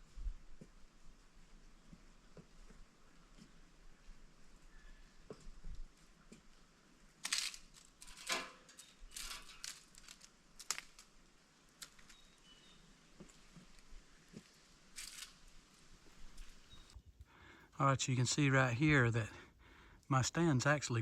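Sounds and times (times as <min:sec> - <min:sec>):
man breathing heavily: 0:17.2 - 0:17.8, 0:19.3 - 0:20.0.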